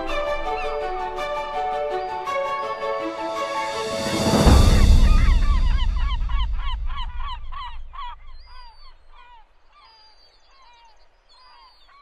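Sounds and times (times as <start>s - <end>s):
music ringing out: 0.0s - 8.6s
bird calls: 3.9s - 12.0s.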